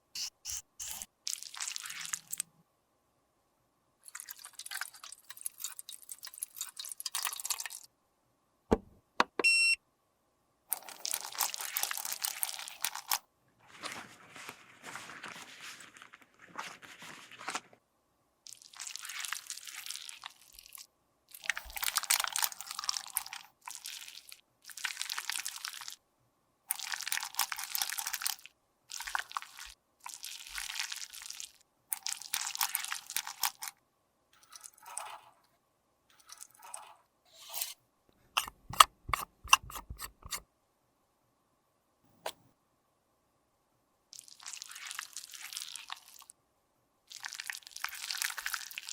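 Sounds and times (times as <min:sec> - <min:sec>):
tool scraping makeup: 0:00.0 - 0:01.1, 0:36.7 - 0:37.8, 0:38.4 - 0:40.4.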